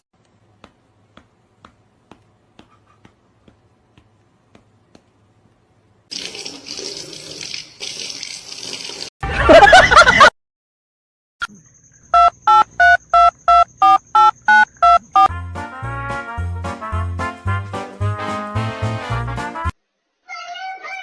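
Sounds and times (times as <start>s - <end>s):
running water: 6.1s - 9.1s.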